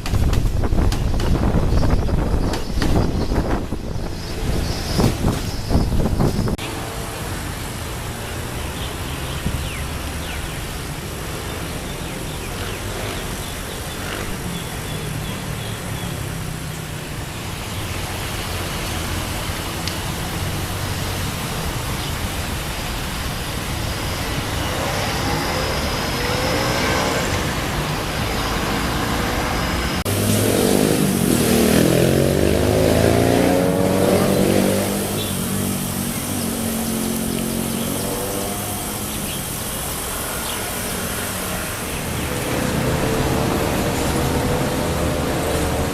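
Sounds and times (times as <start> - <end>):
traffic noise with engine hum: 0.0 - 45.9
engine passing close by: 3.7 - 45.9.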